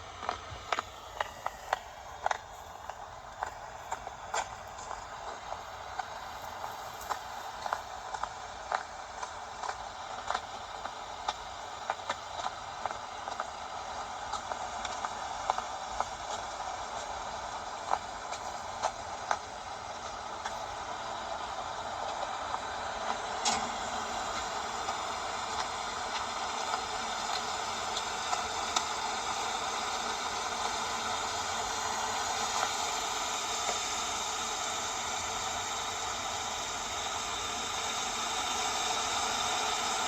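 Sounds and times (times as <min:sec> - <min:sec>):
steady rain hiss: 0:00.0 - 0:40.0.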